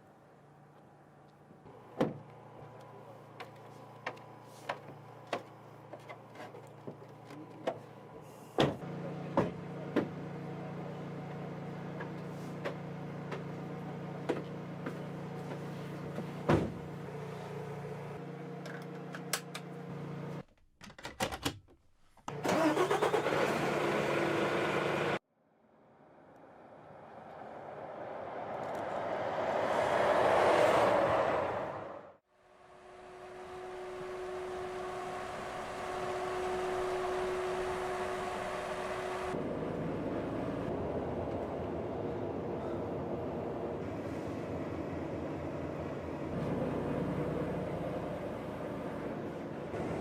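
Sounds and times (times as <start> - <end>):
vehicle engine running: 32.6 - 50.0.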